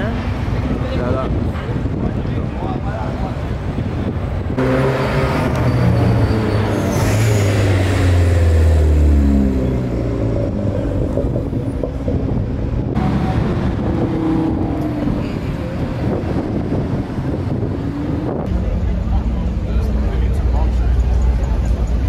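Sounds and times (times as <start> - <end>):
street traffic noise: 0.0 - 22.0
sports car engine pulling away: 4.6 - 18.6.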